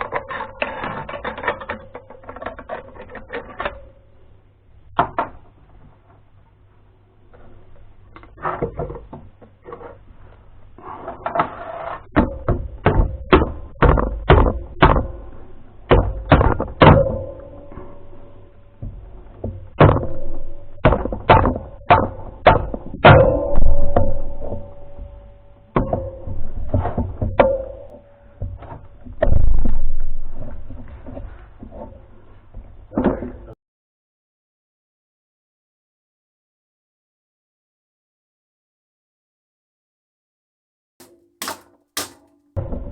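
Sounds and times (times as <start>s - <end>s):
knocks on metal engine parts: 41.0s - 42.4s.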